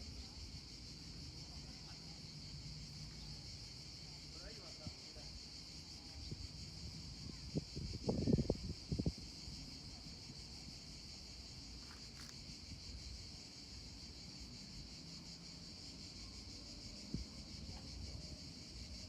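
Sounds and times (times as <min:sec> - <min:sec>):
wind rumble on microphone: 0:06.1 - 0:10.4.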